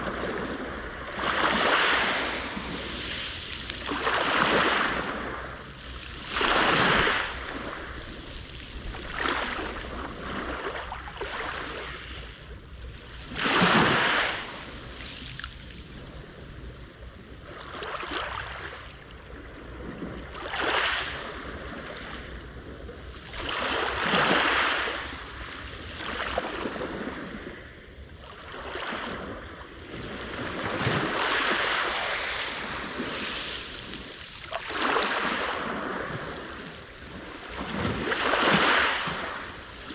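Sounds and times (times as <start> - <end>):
sea waves crashing on shore: 0.0 - 16.7, 17.5 - 39.9.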